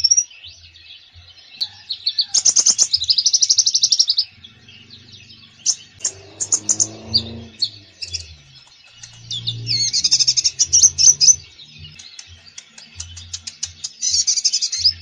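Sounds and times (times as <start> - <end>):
sunbird singing: 0.0 - 15.0
low tones: 4.2 - 13.8.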